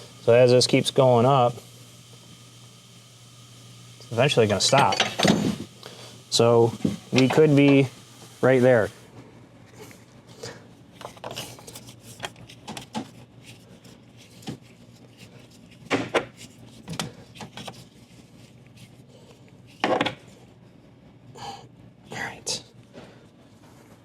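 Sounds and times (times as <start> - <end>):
tools clattering: 4.7 - 5.6.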